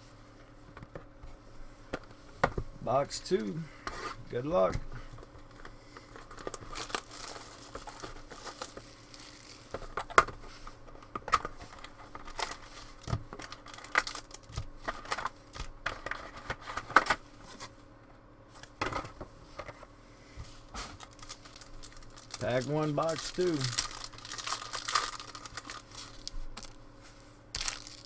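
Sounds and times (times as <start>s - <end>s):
plastic wrap crinkling and tearing: 6.2s - 10.0s, 11.8s - 16.3s, 21.0s - 26.8s, 27.6s - 28.0s.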